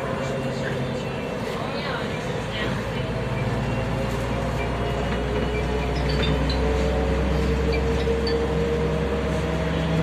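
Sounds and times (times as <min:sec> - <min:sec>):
bus engine and road drone: 0:00.0 - 0:10.0.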